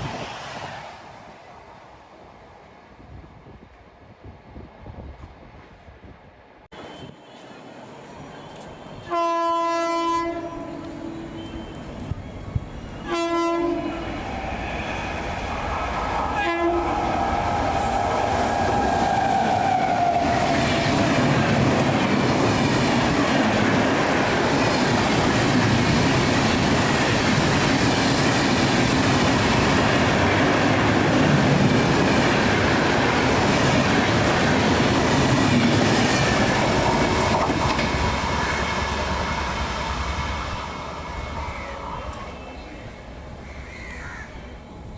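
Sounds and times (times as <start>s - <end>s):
train rumbling past: 0.0s - 44.9s
locomotive horn blasts: 9.0s - 11.8s, 13.0s - 14.1s, 16.4s - 17.0s.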